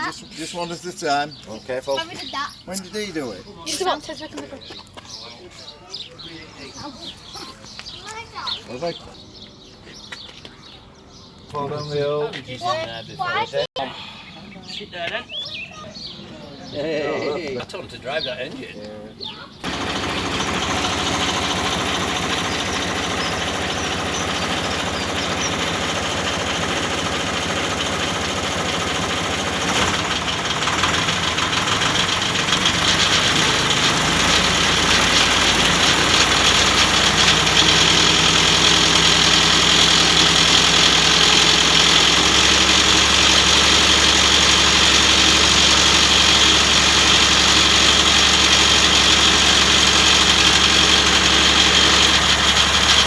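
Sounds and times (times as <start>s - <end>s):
locomotive diesel engine running: 19.6s - 53.0s.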